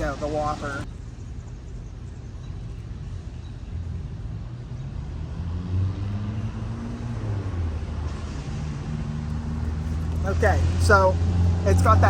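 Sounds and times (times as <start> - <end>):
vehicle engine running: 9.2 - 12.0.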